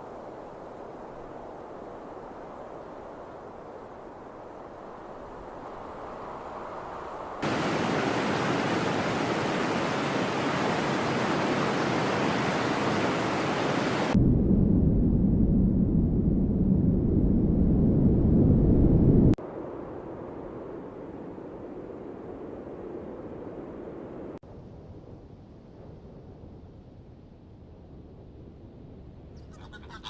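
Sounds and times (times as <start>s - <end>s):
steady rushing noise: 6.0s - 14.2s.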